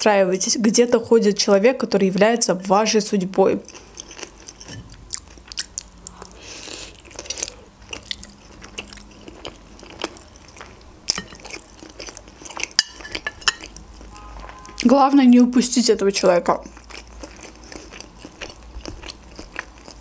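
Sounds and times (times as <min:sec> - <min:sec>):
close chewing with wet smacks: 0:03.6 - 0:06.4, 0:07.0 - 0:14.9, 0:16.5 - 0:20.0.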